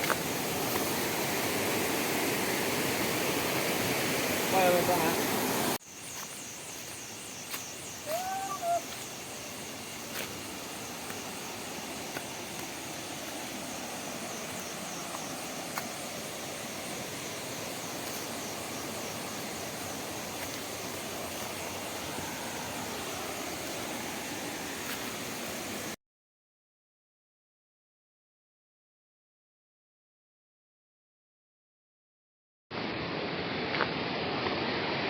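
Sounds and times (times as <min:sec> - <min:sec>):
stream rushing: 0:00.0 - 0:05.8, 0:08.0 - 0:26.0, 0:32.8 - 0:35.0.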